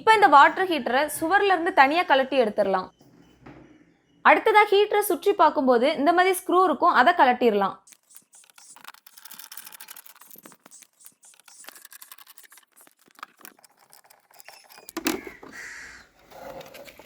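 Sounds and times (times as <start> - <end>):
screwdriver clicks and scratches: 7.9 - 15.4.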